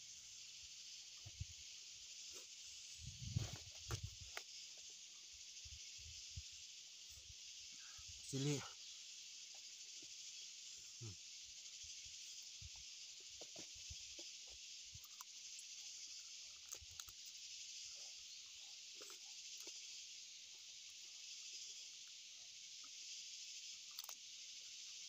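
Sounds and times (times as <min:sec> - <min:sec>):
steady high hiss: 0:00.0 - 0:25.0
people chewing food: 0:15.0 - 0:15.6, 0:16.2 - 0:17.4, 0:18.9 - 0:19.8, 0:23.8 - 0:24.2.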